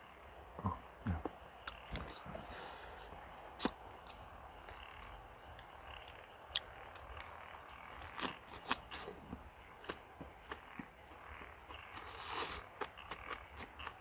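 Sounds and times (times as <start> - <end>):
biting and chewing food: 3.1 - 14.0.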